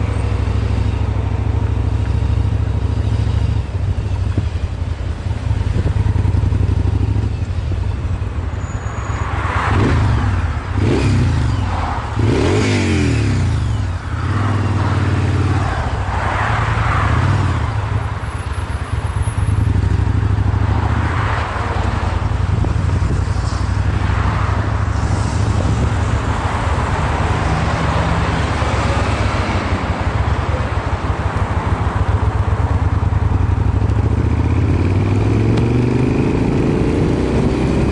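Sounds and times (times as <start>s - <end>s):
motorcycle engine revving: 9.7s - 15.8s, 32.0s - 37.9s.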